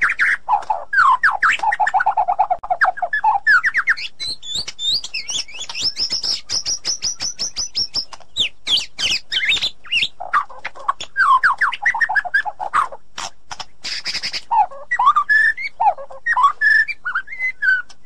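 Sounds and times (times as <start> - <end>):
songbird singing whistles and trills: 0.0 - 13.0, 13.8 - 18.0.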